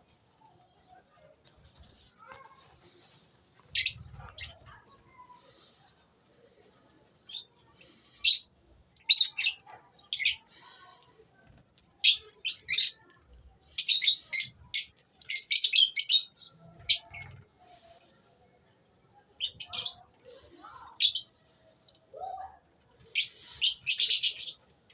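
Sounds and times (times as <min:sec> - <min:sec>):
lovebirds chirping: 0:02.9 - 0:10.9, 0:12.0 - 0:17.9, 0:19.0 - 0:22.4, 0:23.0 - 0:24.7.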